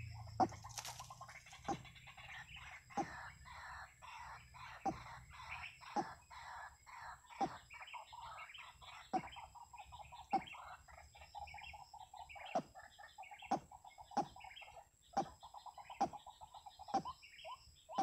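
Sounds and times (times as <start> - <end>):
sharp descending bird calls: 0.0 - 9.5
birds chirping: 0.0 - 18.0
fast pulsing bird trill: 0.0 - 18.0.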